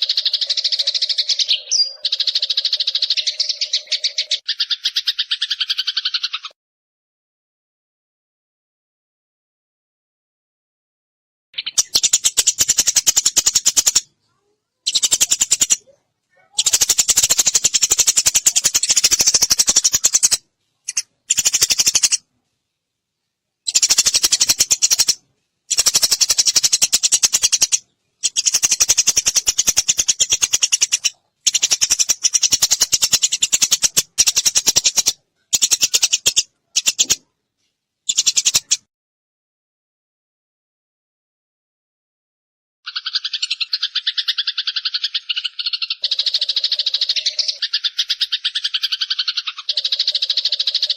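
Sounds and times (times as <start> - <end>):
sparrow chirping: 0.0 - 6.5, 11.6 - 22.3, 23.6 - 37.2, 38.1 - 38.9, 42.9 - 50.9.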